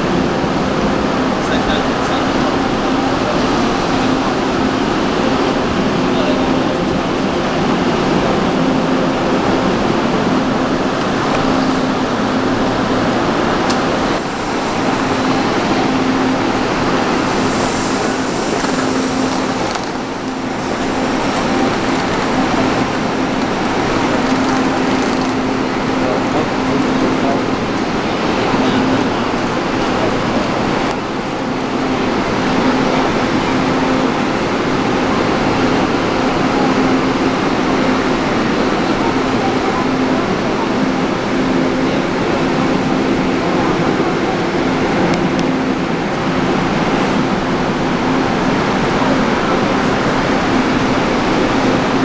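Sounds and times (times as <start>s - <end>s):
train rushing noise: 0.0s - 52.0s.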